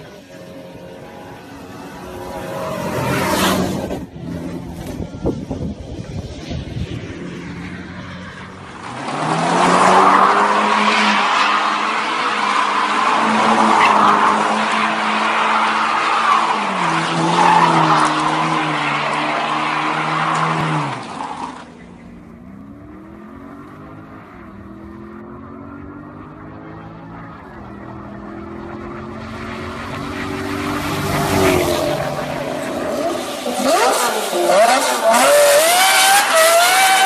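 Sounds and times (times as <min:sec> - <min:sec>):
engine with rising pitch: 0:00.0 - 0:37.0
car engine revving high: 0:22.8 - 0:37.0.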